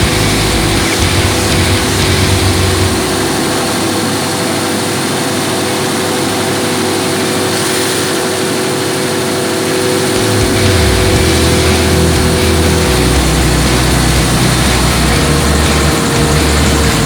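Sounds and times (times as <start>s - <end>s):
deep low rumble: 0.0s - 3.4s, 10.2s - 17.0s
diesel generator running: 0.0s - 17.0s
steady hum: 0.0s - 17.0s.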